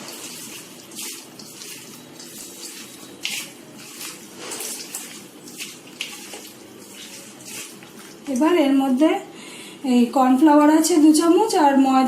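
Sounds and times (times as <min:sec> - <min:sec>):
hands squelching raw chicken: 0:00.0 - 0:08.3.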